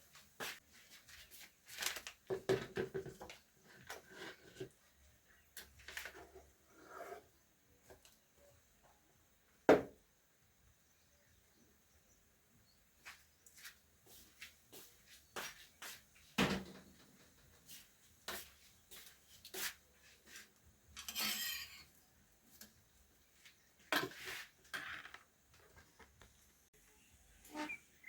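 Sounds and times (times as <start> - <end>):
kitchen items knocking and clinking: 2.2 - 4.0
scraping rustle: 23.9 - 26.1.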